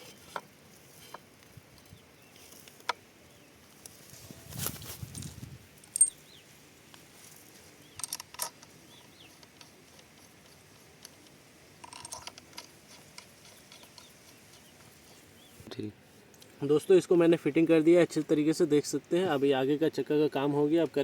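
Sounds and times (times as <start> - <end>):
metallic clicks of hand tools: 7.9 - 15.0.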